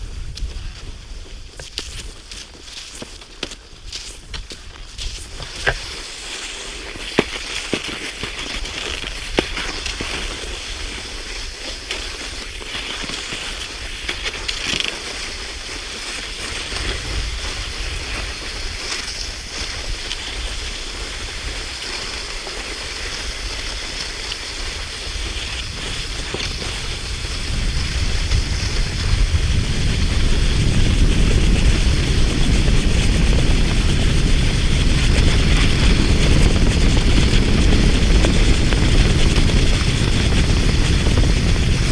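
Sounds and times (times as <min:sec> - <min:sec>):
skis hissing on snow: 0:00.0 - 0:41.9
low rumble: 0:24.9 - 0:41.9.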